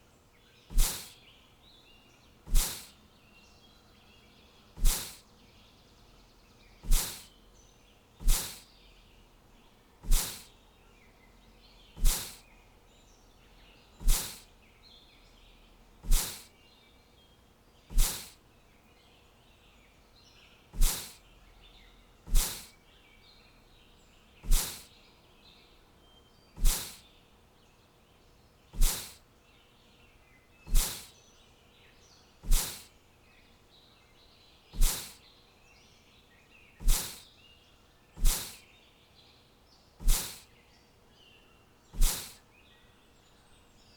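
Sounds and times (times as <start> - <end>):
faint bird chirping: 0.0 - 43.9
short sharp noise bursts: 0.7 - 1.1, 2.5 - 2.9, 4.8 - 5.2, 6.8 - 7.3, 8.2 - 8.6, 10.0 - 10.5, 12.0 - 12.4, 14.0 - 14.4, 16.0 - 16.5, 17.9 - 18.4, 20.8 - 21.2, 22.3 - 22.7, 24.4 - 24.9, 26.6 - 27.0, 28.8 - 29.2, 30.7 - 31.1, 32.4 - 32.9, 34.8 - 35.2, 36.8 - 37.2, 38.2 - 38.6, 40.0 - 40.4, 42.0 - 42.4.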